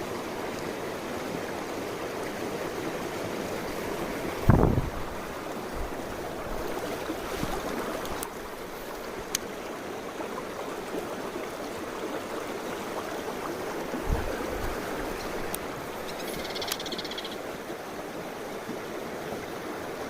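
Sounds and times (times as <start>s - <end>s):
stream flowing over rocks: 0.0s - 20.0s
faint clicks: 9.2s - 9.5s, 15.2s - 17.4s.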